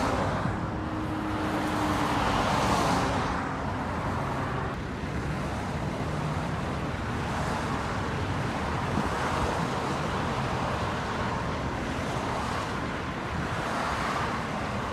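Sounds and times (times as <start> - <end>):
freeway traffic roar: 0.0 - 14.9.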